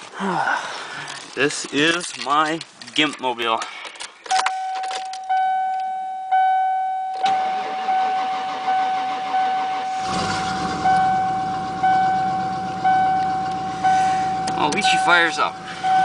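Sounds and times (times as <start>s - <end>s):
car warning chime dinging: 4.3s - 10.0s, 10.8s - 16.0s
car engine running: 7.3s - 16.0s
man speaking: 14.5s - 15.7s.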